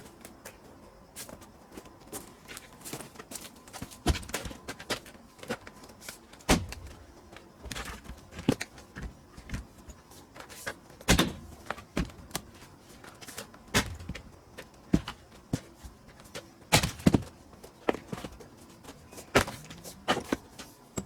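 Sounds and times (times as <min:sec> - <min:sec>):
heavy axe strikes: 0:06.5 - 0:06.9, 0:11.1 - 0:11.6
firewood being split: 0:06.5 - 0:07.0, 0:11.1 - 0:12.5, 0:13.4 - 0:14.3, 0:16.7 - 0:17.3, 0:19.2 - 0:20.3.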